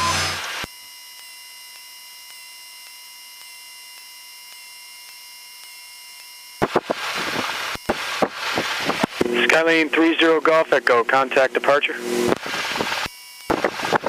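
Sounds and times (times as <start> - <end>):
faint electrical whine: 0.0 - 14.0
radio clicks and static bursts: 6.6 - 14.0
steady intercom hiss: 8.4 - 13.0.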